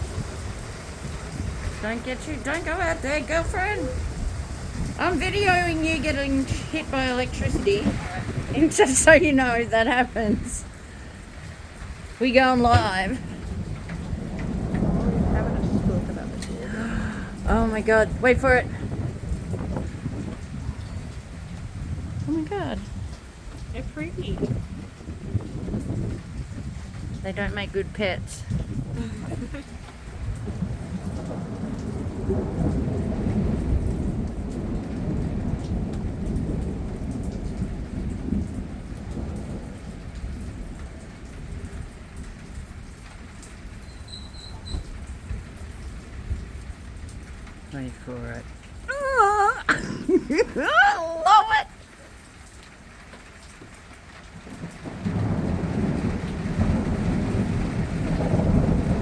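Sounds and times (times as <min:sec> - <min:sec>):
rolling thunder: 0:00.0 - 0:48.9, 0:54.0 - 0:59.0
steady rain: 0:00.0 - 0:59.0.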